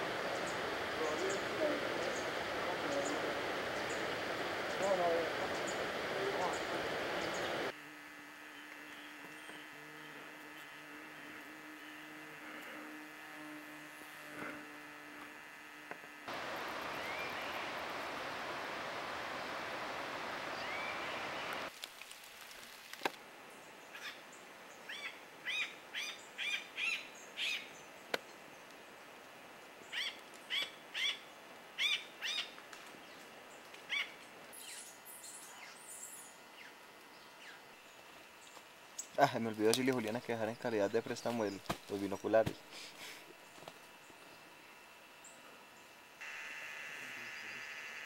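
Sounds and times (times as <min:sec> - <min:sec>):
steady rushing noise: 0:00.0 - 0:07.7, 0:16.3 - 0:21.7.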